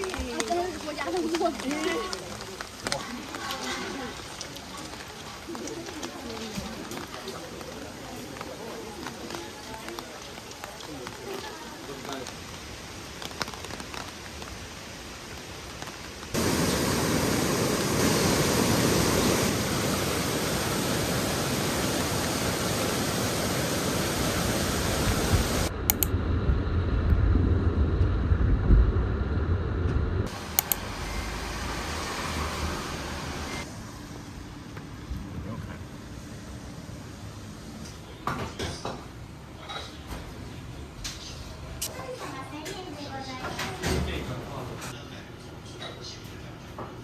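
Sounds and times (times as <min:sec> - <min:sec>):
loud rushing noise: 0:16.4 - 0:35.4
low rumble: 0:22.6 - 0:37.0.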